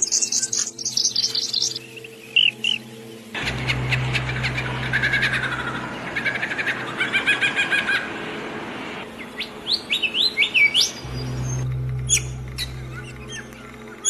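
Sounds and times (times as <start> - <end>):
small birds chirping and singing: 0.0 - 6.8, 9.2 - 14.0
low steady hum: 2.8 - 7.3, 10.9 - 14.0.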